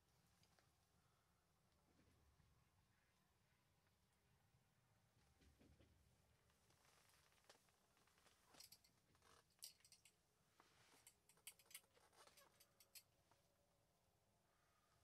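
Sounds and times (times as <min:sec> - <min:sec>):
fishing reel clicks and rustles: 0:08.2 - 0:10.2, 0:10.9 - 0:13.0.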